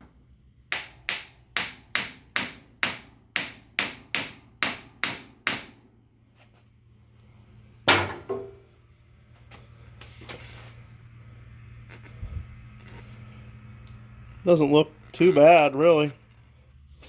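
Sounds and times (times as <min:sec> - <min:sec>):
hammer blows with metallic ring: 0:00.7 - 0:06.4.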